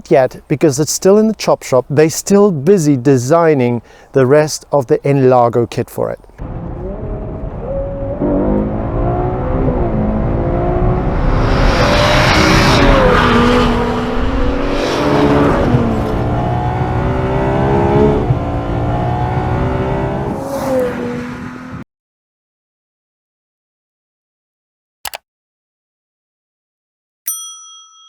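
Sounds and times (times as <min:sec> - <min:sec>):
car engine revving: 0:06.4 - 0:21.8.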